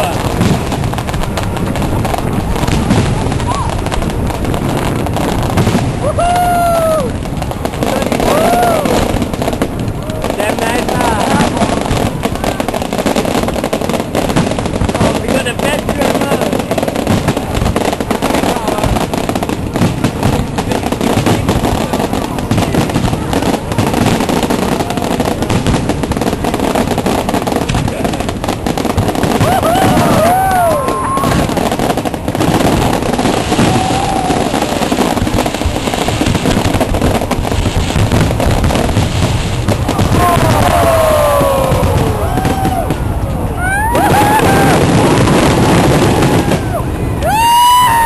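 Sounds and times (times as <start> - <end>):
fireworks crackling and popping: 0.0 - 48.0
person whooping: 6.0 - 7.2, 8.2 - 9.1, 29.4 - 31.5, 33.6 - 34.8, 39.9 - 45.2, 46.2 - 48.0.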